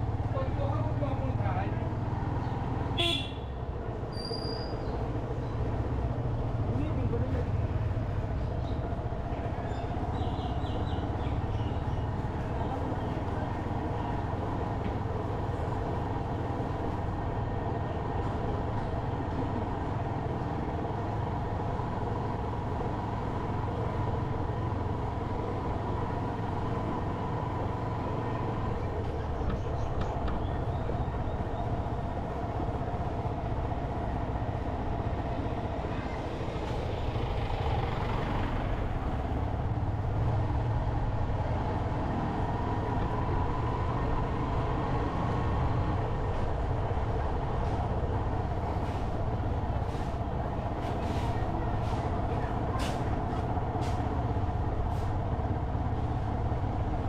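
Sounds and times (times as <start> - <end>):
road and wind noise: 0.0 - 57.0
traffic noise: 0.0 - 57.0
motorcycle engine running: 36.7 - 39.5.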